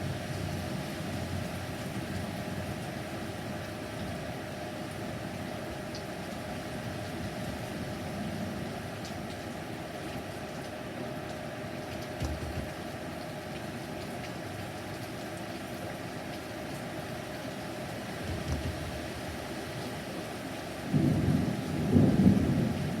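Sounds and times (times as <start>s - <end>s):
steady rain: 0.0s - 23.0s
wind: 0.0s - 23.0s
low thunder rumbles: 20.9s - 23.0s.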